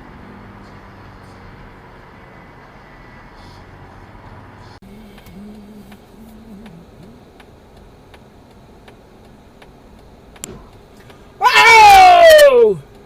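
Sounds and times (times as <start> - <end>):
turn signal ticking: 4.2 - 11.4, 12.3 - 13.0.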